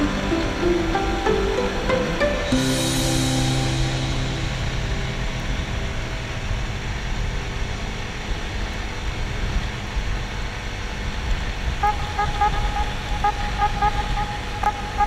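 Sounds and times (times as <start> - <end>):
held tone: 0.0 - 6.6, 11.8 - 15.0.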